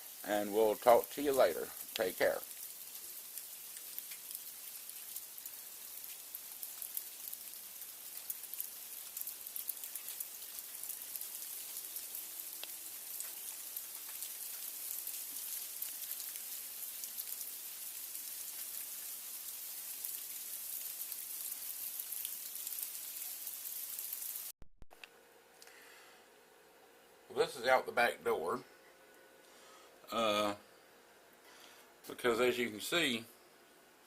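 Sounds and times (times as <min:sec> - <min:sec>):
sleet and freezing rain pattering: 0:00.0 - 0:24.5.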